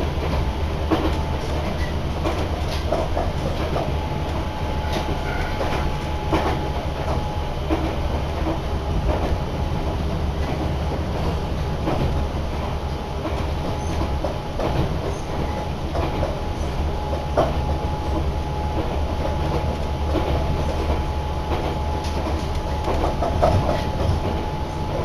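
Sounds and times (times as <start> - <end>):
train wheels rumbling on track: 0.0 - 25.0
wheels clicking over rail joints: 18.8 - 25.0.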